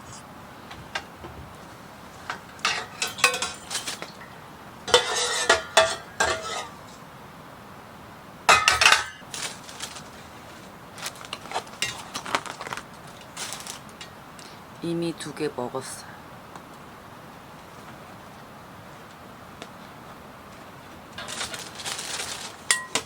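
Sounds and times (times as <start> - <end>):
cutlery and dishes clinking: 2.3 - 4.2, 4.9 - 6.8, 8.5 - 9.9, 21.2 - 23.0.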